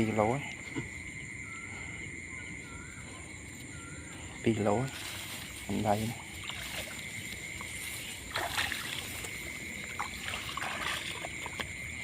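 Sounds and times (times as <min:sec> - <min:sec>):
high-pitched insect drone: 0:00.0 - 0:12.0
water splashing and sloshing: 0:04.9 - 0:12.0.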